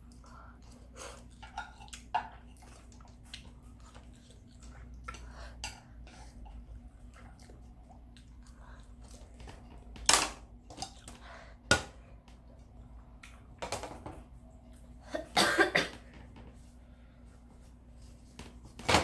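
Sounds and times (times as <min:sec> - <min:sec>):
person coughing: 0:15.1 - 0:16.1.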